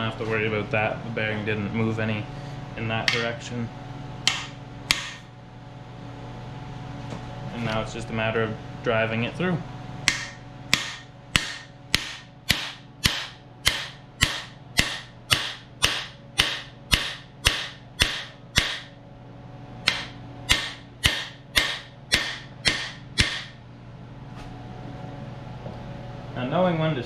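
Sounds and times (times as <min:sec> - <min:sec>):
hammer striking metal tool: 0:04.3 - 0:05.2, 0:10.1 - 0:18.9, 0:19.9 - 0:23.6.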